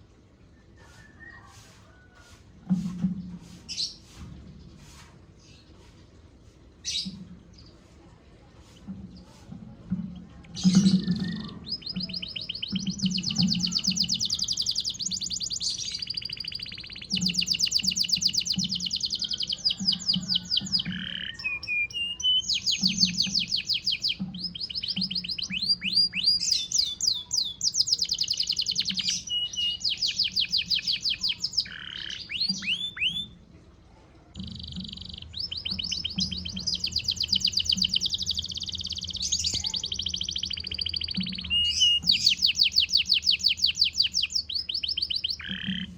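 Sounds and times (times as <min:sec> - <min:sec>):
canary singing trills: 0:10.4 - 0:33.4, 0:34.3 - 0:45.9.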